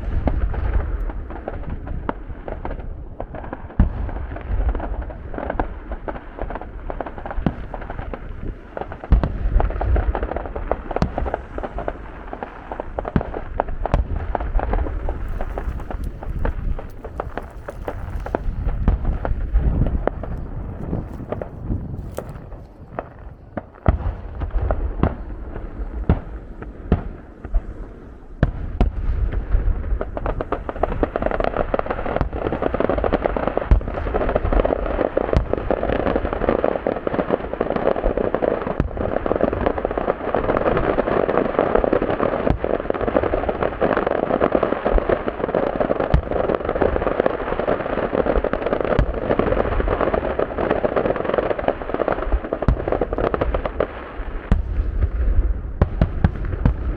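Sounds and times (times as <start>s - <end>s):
fireworks crackle: 0.0s - 56.9s
firework shells bursting: 6.6s - 28.0s.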